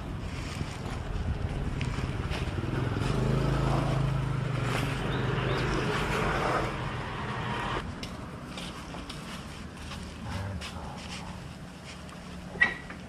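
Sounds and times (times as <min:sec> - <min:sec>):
street traffic noise: 0:00.0 - 0:13.0
motorbike engine running: 0:00.6 - 0:07.8.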